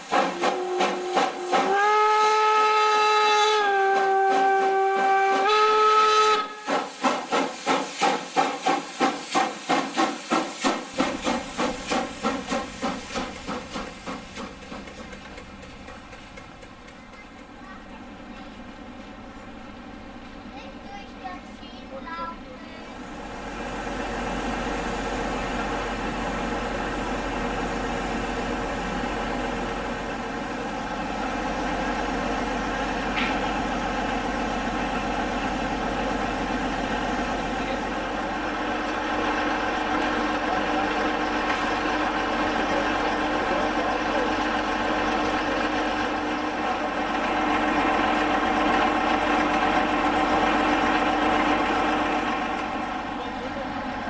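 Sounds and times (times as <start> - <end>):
engine humming: 11.0 - 54.0.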